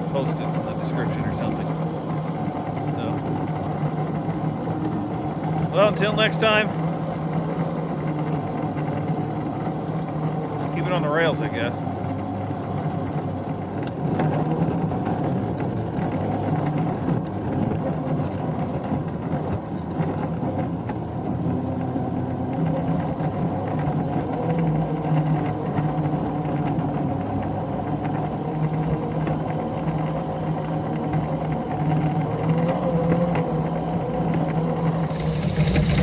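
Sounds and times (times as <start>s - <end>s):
engine running steadily: 0.0s - 6.9s, 34.9s - 36.0s.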